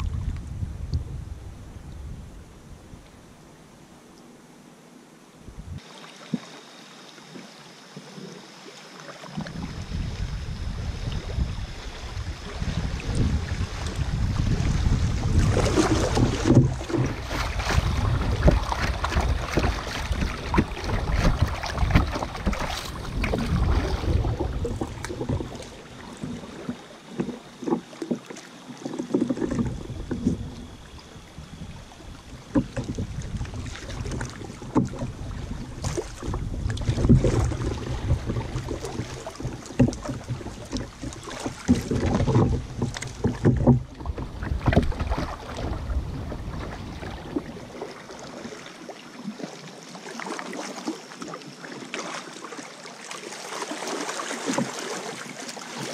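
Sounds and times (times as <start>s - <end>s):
wind buffeting microphone: 0.0s - 3.1s, 5.5s - 5.8s, 9.4s - 26.6s, 29.4s - 47.8s
paddle splashing in water: 5.8s - 55.9s.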